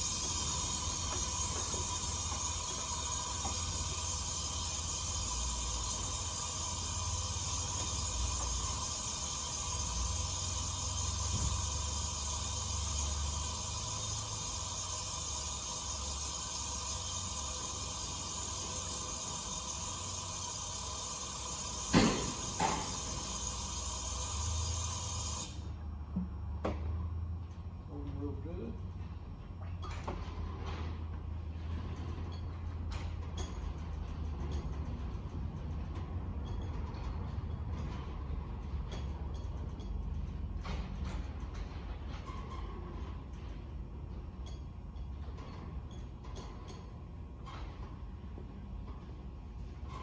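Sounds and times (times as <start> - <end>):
steady hiss: 0.0 - 25.6.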